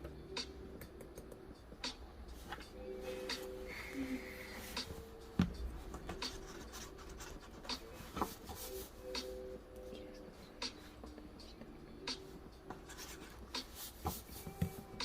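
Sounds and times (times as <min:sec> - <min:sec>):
pen scratching on paper: 0:06.3 - 0:07.7, 0:12.7 - 0:14.8.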